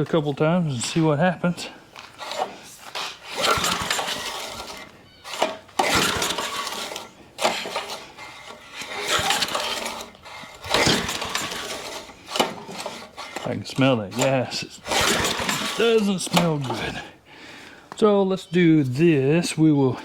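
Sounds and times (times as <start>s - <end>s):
engine recoil starter cranking: 2.0s - 17.1s.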